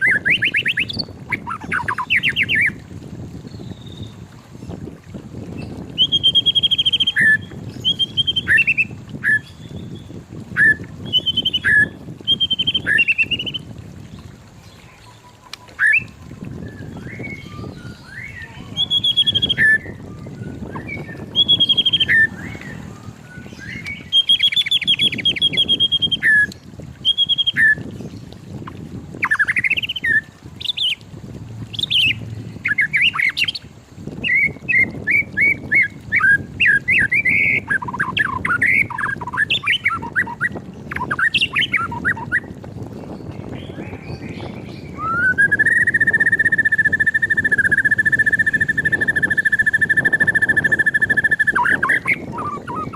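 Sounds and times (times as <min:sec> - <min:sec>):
bird singing whistled phrases: 0:00.0 - 0:02.8, 0:05.6 - 0:13.6, 0:15.1 - 0:27.9, 0:29.2 - 0:31.0, 0:34.2 - 0:42.4, 0:43.6 - 0:52.9
low rumble: 0:18.8 - 0:25.3, 0:30.3 - 0:34.5.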